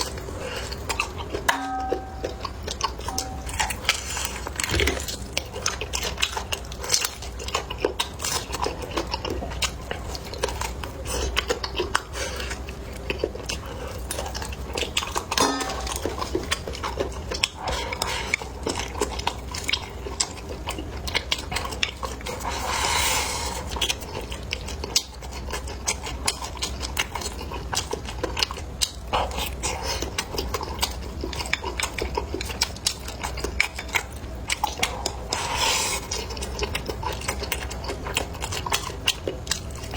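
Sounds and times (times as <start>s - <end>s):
chewing and biting: 0.0s - 39.9s
low hum: 0.2s - 5.4s, 15.2s - 16.8s
utensils clicking on dishes: 0.6s - 7.6s, 13.1s - 19.0s.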